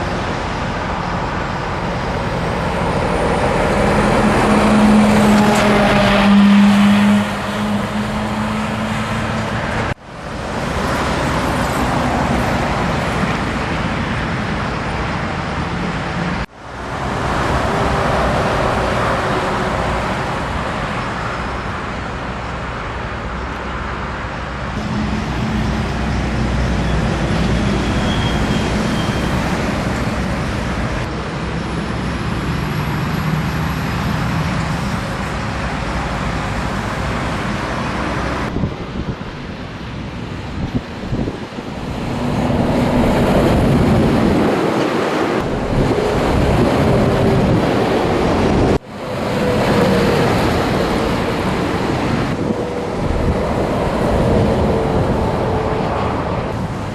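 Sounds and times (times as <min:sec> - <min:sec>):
traffic and tyre noise: 0:00.0 - 0:56.9
truck engine drone: 0:00.0 - 0:56.9.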